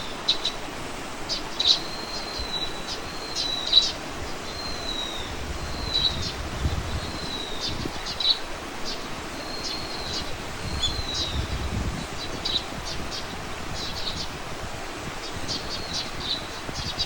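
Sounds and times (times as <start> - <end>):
small birds whistling and chirping: 1.3 - 14.4, 15.2 - 17.0
wind rumble: 4.1 - 9.3, 10.0 - 17.0.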